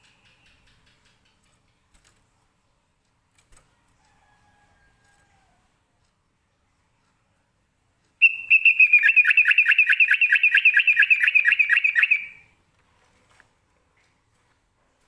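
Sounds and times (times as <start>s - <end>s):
bird singing repeated notes: 8.2s - 12.4s.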